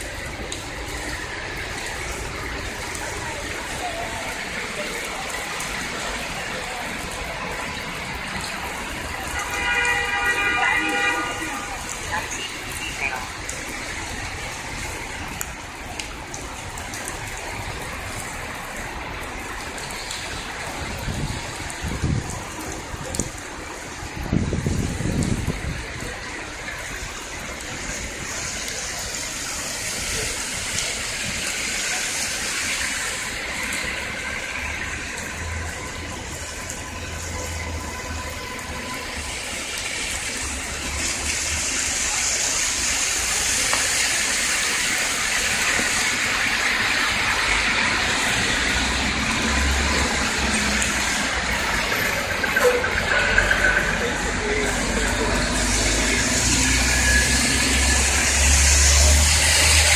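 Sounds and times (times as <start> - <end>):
heavy rain: 0.0 - 59.9
traffic hissing on wet road: 0.0 - 59.9
bus passing: 24.8 - 59.9.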